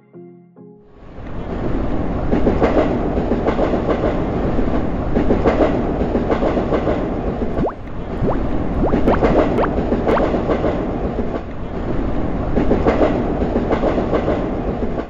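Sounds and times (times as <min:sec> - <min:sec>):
subway train rumbling: 0:01.0 - 0:07.6, 0:09.8 - 0:15.0.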